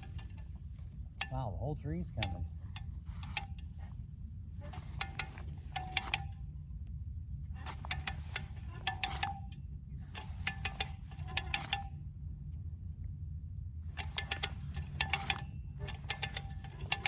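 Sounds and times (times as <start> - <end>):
hand winch ratchet clicking: 0.0 - 1.4, 2.1 - 3.9, 4.6 - 6.4, 7.6 - 12.0, 13.9 - 17.0
steady low rumble: 0.0 - 17.0
short metallic ring: 4.6 - 6.4, 7.6 - 12.0.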